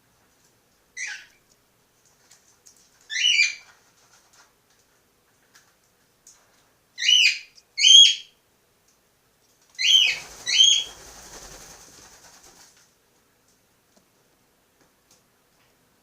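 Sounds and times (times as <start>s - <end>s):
cockatiels chirping: 3.1s - 3.6s, 7.0s - 8.3s, 9.8s - 10.9s.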